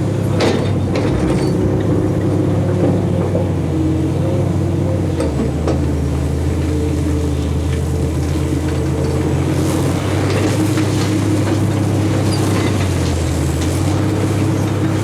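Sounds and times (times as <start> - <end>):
diesel machinery running: 0.0 - 15.0.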